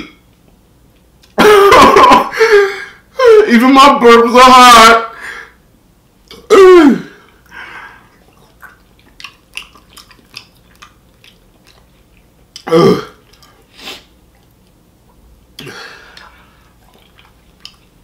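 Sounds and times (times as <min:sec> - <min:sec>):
man chewing with mouth smacks: 0:00.1 - 0:01.4, 0:07.2 - 0:18.0
throaty burp or groan: 0:12.6 - 0:13.2
breathy puff: 0:13.7 - 0:14.1.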